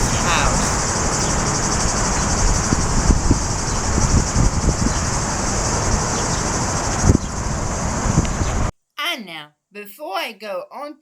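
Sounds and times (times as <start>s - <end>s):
cicadas buzzing: 0.0s - 8.7s
distant traffic rumble: 0.0s - 8.7s
wind: 0.0s - 8.7s.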